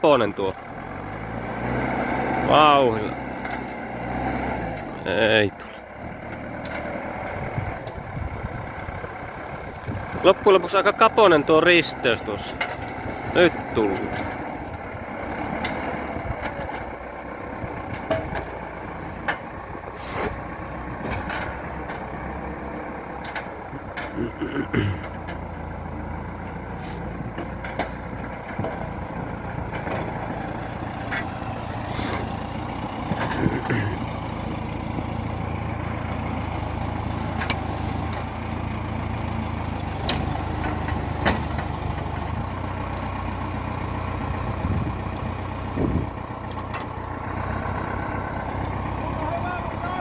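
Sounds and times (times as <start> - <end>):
tractor diesel engine running: 0.0 - 50.0
short knocks and clanks: 12.0 - 34.6, 39.9 - 42.4.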